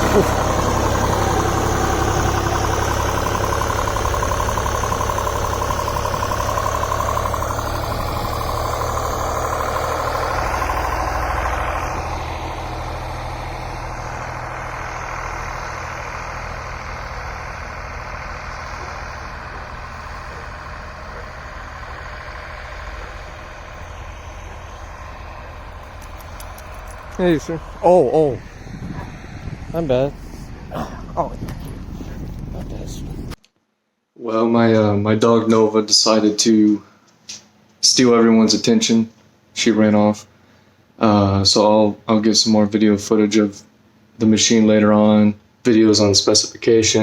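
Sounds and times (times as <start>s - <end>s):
diesel engine running: 0.0s - 33.4s.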